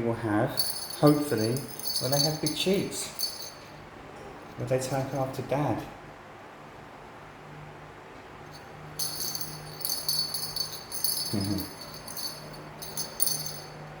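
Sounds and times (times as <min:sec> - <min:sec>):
low steady hum: 0:00.0 - 0:07.4, 0:08.1 - 0:14.0
metallic bell jingling: 0:00.5 - 0:03.7, 0:08.6 - 0:13.9.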